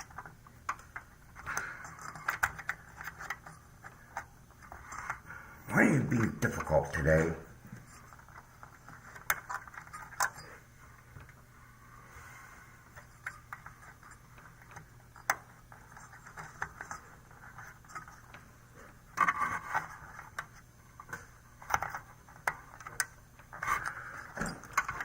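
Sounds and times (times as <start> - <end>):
battery clicking and scraping: 0.0 - 5.3, 7.8 - 10.6.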